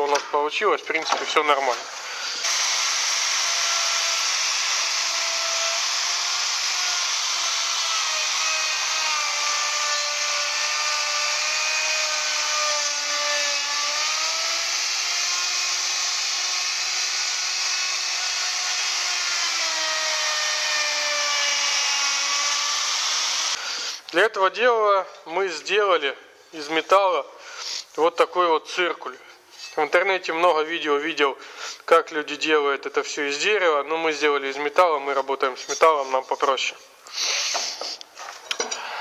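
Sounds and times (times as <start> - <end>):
wood router whining: 2.2 - 23.9.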